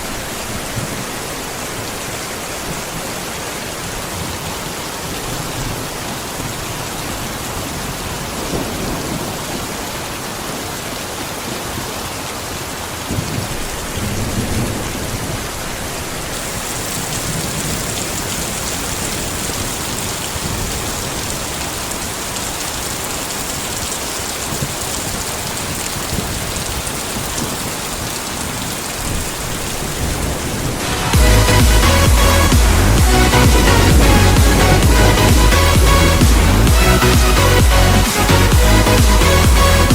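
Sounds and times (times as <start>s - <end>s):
heavy rain falling: 0.0s - 39.9s
low thunder rumbling: 13.1s - 21.6s, 25.6s - 39.9s.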